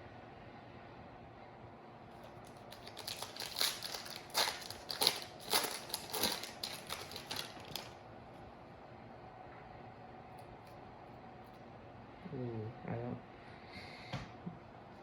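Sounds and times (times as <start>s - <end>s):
foil wrapper crinkling: 2.2s - 8.0s.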